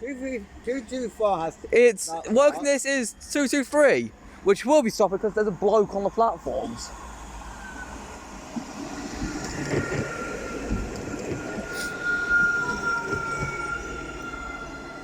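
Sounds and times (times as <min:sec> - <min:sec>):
tram wheels rumbling on rails: 0:00.0 - 0:15.0
high-pitched whine: 0:04.7 - 0:15.0.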